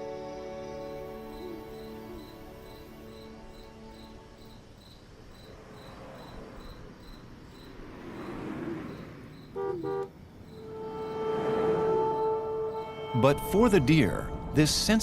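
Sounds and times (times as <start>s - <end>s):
crickets chirping: 0.0s - 14.6s
car passing: 0.9s - 15.0s
car horn toots: 9.4s - 13.6s.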